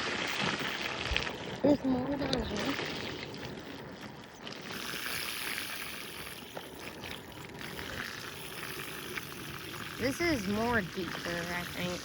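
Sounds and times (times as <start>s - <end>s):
floodwater rushing: 4.6s - 12.0s.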